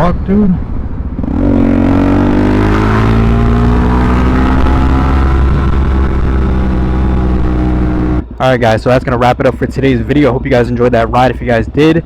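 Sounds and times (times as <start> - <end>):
motorcycle engine running: 1.0 - 8.2.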